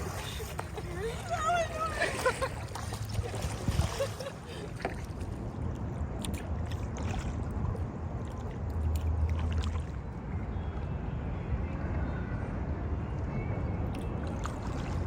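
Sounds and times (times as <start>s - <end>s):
water splashing and dripping: 0.0s - 10.2s.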